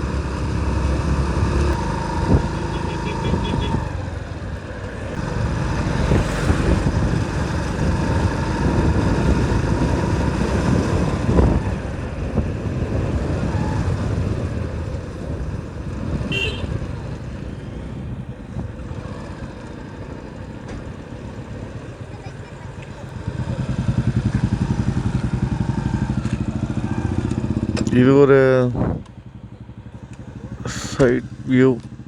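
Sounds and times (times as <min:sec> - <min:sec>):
motorcycle riding: 0:00.0 - 0:32.0
wind rumble on microphone: 0:02.1 - 0:02.7, 0:03.3 - 0:19.2, 0:28.6 - 0:29.2.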